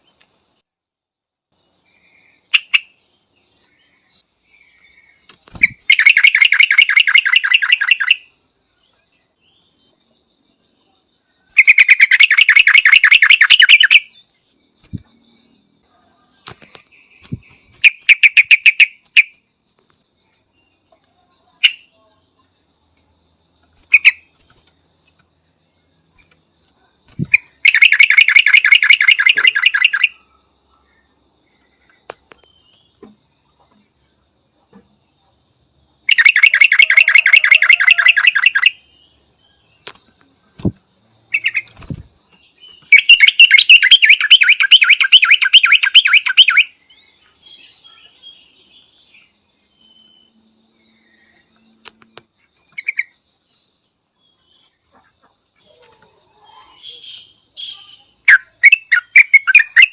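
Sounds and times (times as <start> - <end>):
bird chattering call: 5.5 - 8.2, 11.6 - 14.1, 36.1 - 38.7, 42.9 - 46.7.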